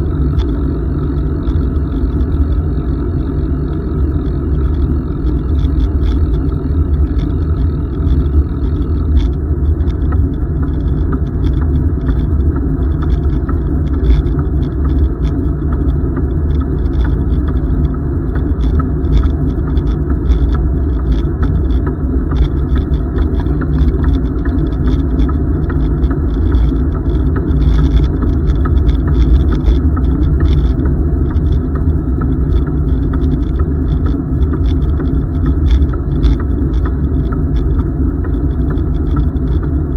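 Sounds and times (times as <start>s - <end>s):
bicycle tyres rolling on pavement: 0.0s - 39.9s
bike clicks and rattles: 0.0s - 39.9s
wind rumbling on microphone: 0.0s - 39.9s.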